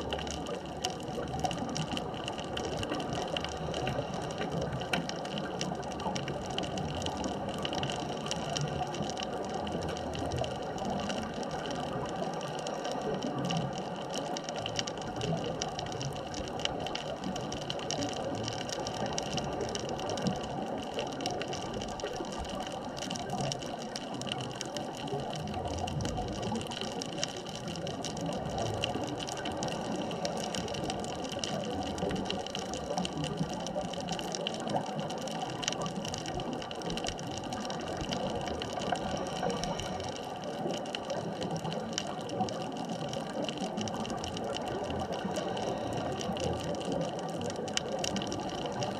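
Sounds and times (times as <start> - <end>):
underwater hiss: 38.8 - 40.7, 45.2 - 46.5.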